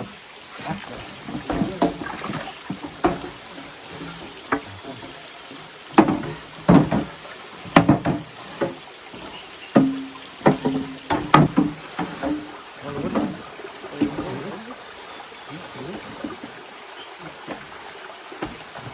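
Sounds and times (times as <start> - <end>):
rain hiss: 0.0 - 18.9
sharp knocks and clatter: 1.2 - 5.2, 5.9 - 13.4.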